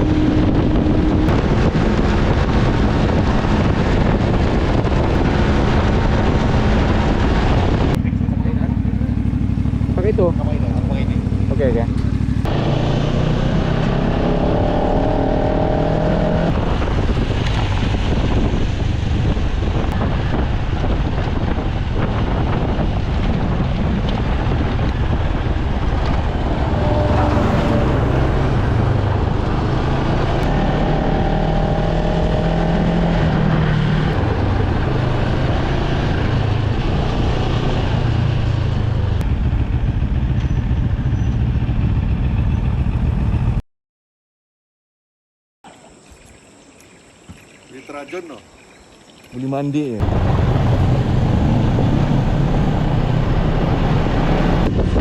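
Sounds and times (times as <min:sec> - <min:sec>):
motorcycle engine running: 0:00.0 - 0:32.5, 0:34.1 - 0:43.6.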